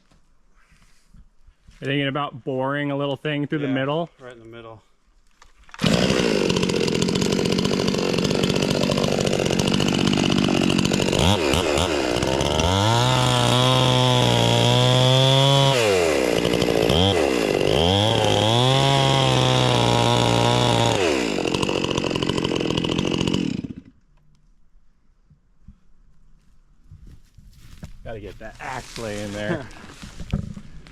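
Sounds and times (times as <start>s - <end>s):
electric chainsaw cutting wood: 5.7s - 24.0s.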